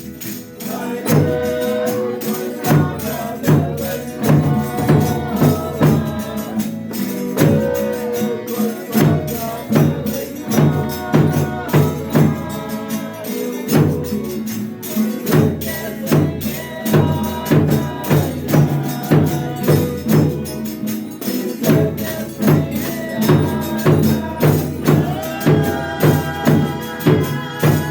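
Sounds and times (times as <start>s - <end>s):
people singing: 0.0s - 27.9s
tambourine beating: 0.0s - 27.9s.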